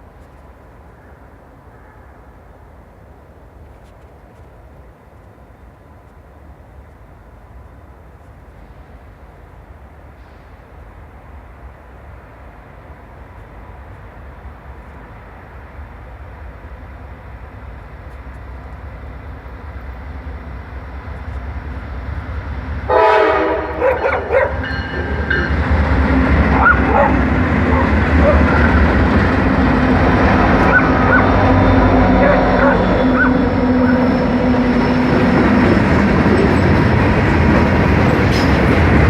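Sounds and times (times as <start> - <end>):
freight train rumbling: 0.0 - 39.0
locomotive horn blast: 22.9 - 29.0, 30.0 - 35.5.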